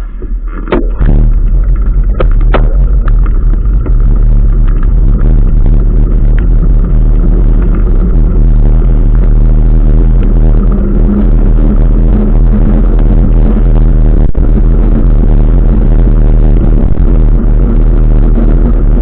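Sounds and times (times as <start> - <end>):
wind and road noise rumble: 0.0 - 19.0
sharp knocks: 0.6 - 5.0.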